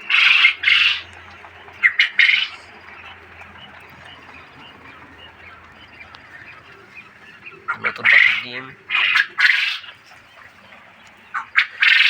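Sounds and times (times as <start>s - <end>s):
quail harsh calls: 0.0s - 12.0s.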